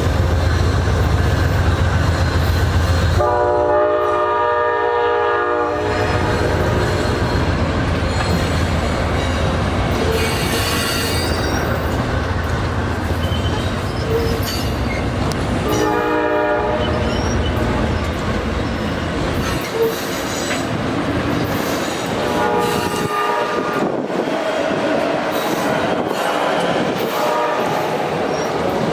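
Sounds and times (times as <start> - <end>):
train wheels on track: 0.0 - 28.9
train horn blast: 3.1 - 7.3, 15.6 - 17.6, 22.2 - 24.0, 27.0 - 28.0.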